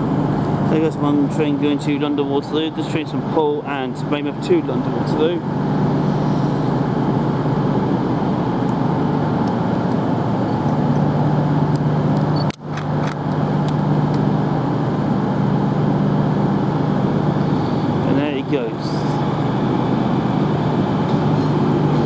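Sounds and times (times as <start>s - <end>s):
train humming: 13.9s - 22.0s.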